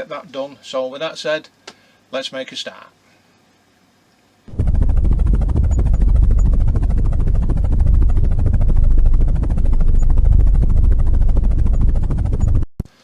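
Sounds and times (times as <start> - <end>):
helicopter rotor blades chopping: 4.5 - 12.7
turbine rushing: 4.5 - 12.7.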